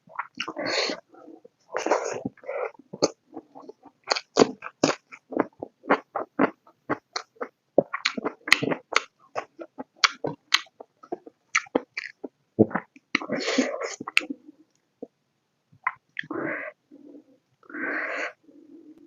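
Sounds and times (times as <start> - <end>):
chewing and lip smacking: 3.0 - 14.3.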